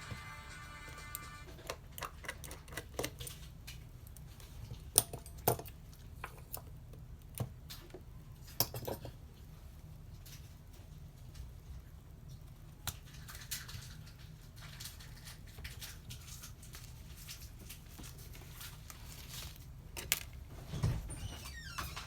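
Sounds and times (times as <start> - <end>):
music: 0.0 - 1.7.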